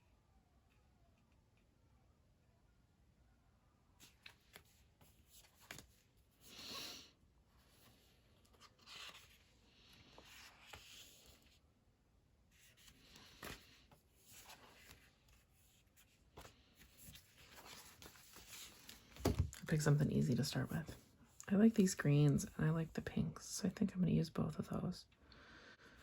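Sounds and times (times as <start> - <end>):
paper rustling: 4.0 - 6.6, 7.6 - 11.6, 12.5 - 19.9.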